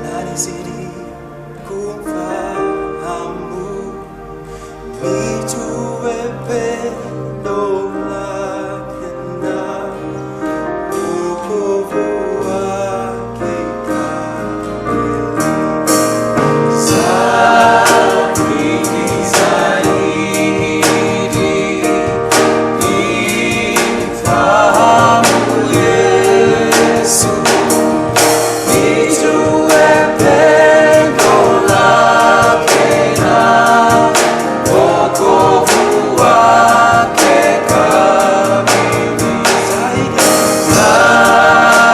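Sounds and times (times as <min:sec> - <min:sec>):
choir singing with a band: 0:10.9 - 0:41.9
drum beat: 0:16.9 - 0:41.9.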